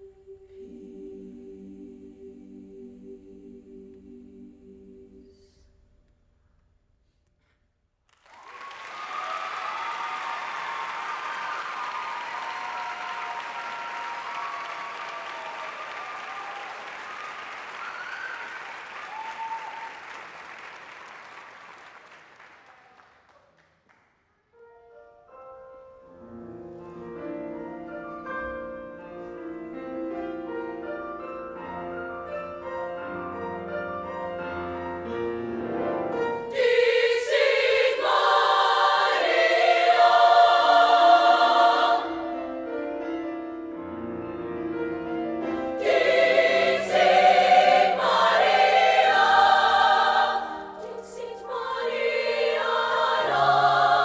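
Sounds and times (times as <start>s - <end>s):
choir singing: 0.0s - 5.8s, 34.4s - 42.7s, 45.4s - 54.0s
audience applause: 8.2s - 23.7s.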